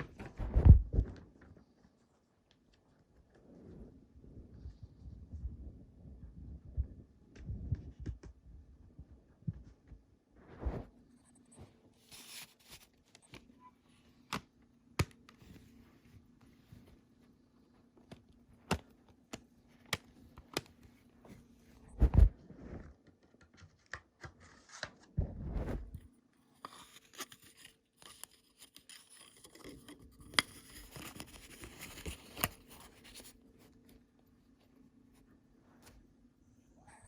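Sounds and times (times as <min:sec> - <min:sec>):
packaging rustling and scraping: 0:12.0 - 0:13.3, 0:25.7 - 0:33.4.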